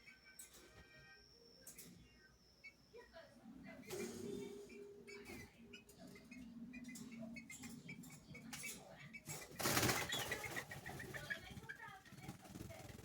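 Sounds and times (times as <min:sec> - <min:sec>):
birds chipping calls: 0:03.8 - 0:13.0
wing flapping: 0:09.4 - 0:13.0.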